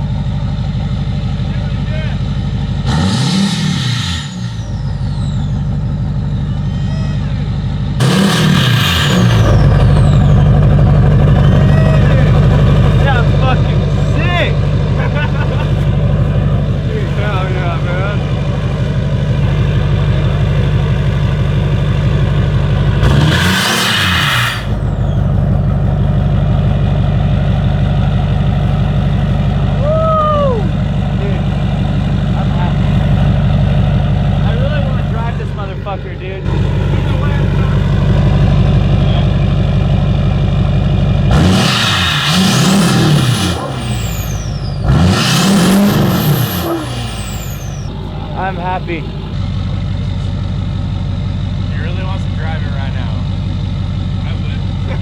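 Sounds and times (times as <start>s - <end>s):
diesel truck engine idling: 0.0s - 55.0s
engine revving with hissing rush: 2.8s - 5.2s, 8.0s - 25.7s, 41.2s - 49.6s
turbo whistle: 3.5s - 13.1s, 41.6s - 49.4s.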